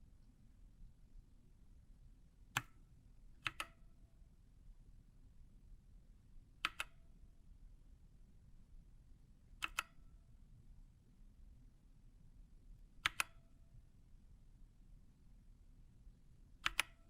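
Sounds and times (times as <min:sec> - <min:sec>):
sharp mechanical keyboard clicks: 0:03.4 - 0:03.8, 0:06.6 - 0:07.0, 0:09.6 - 0:10.0, 0:13.0 - 0:13.4, 0:16.6 - 0:17.0.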